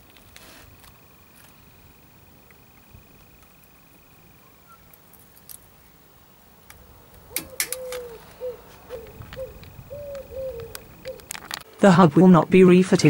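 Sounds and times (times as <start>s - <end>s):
repeated cooing notes: 7.2s - 13.0s.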